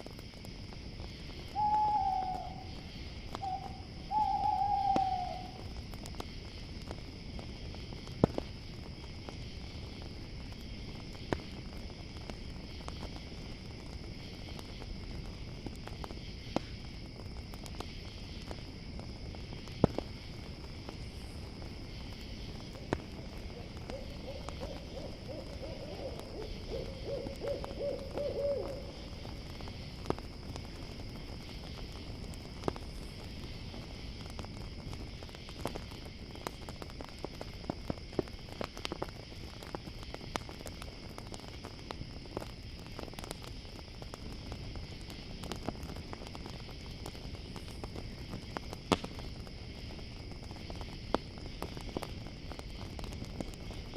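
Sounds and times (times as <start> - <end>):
campfire crackling: 0.0 - 53.9
crickets chirping: 0.0 - 53.9
owl hooting: 1.5 - 2.7, 3.4 - 5.6, 22.8 - 29.0.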